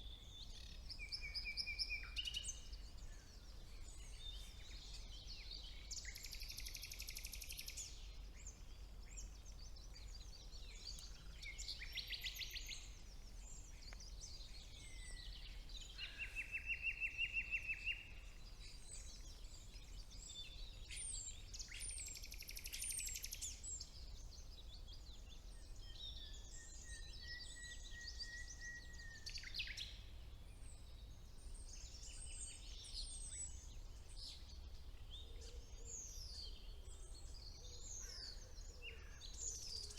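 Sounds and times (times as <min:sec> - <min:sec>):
nightingale singing: 0:00.0 - 0:23.9
bird chirps: 0:00.0 - 0:24.0.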